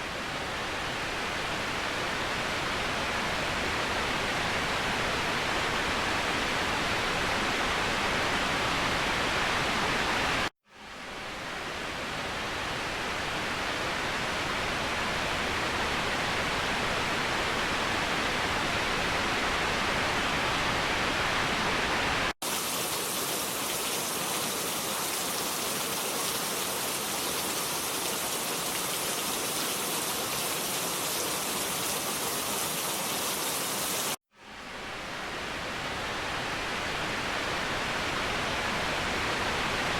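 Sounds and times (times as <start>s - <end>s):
waterfall rushing: 22.4s - 34.2s.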